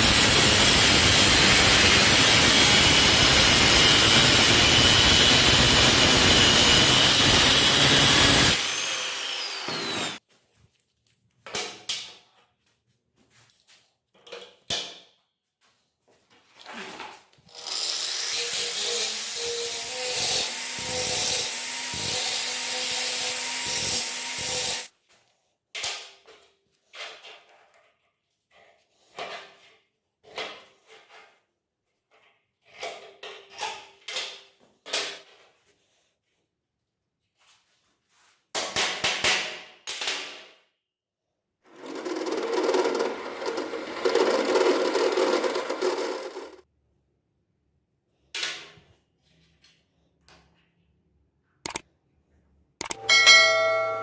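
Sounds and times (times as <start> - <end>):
power tool running: 0.0 - 10.2, 17.7 - 24.9, 41.7 - 46.6
tool scraping workpiece: 41.7 - 46.7.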